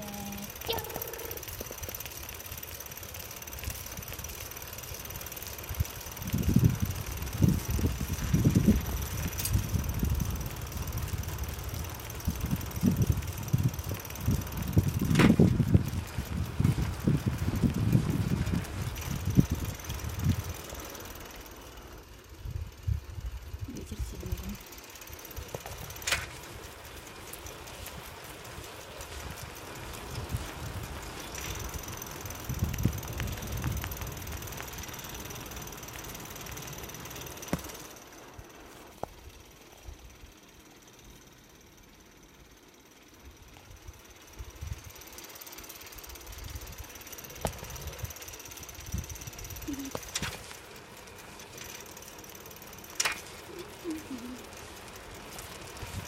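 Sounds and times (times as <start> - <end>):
bicycle rolling on forest track: 0.0 - 56.0
bike clicks and rattles: 0.0 - 56.0
wind rumbling on microphone: 3.5 - 21.3, 22.3 - 37.7, 43.3 - 45.1, 46.1 - 51.7, 52.9 - 56.0.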